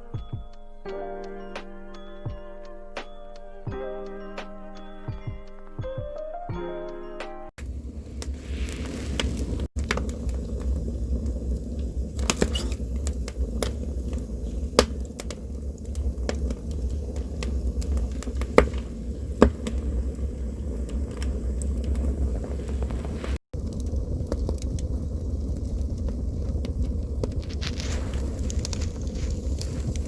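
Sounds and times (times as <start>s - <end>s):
campfire crackling and popping: 7.6s - 30.0s
low fire rumble: 7.6s - 30.0s.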